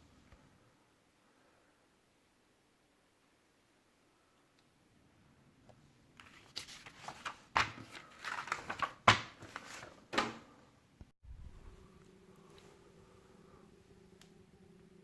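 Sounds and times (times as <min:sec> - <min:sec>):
packaging rustling: 0:06.2 - 0:10.2.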